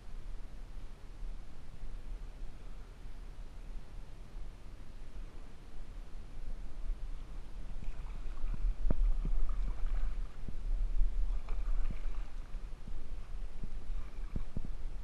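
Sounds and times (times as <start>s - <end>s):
steady low rumble: 0.0s - 15.0s
paddle strokes splashing: 7.6s - 14.8s.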